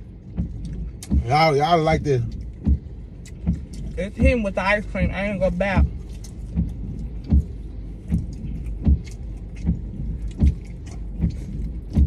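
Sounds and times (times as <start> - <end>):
low hum: 0.0 - 12.0
chewing thuds: 5.8 - 12.0.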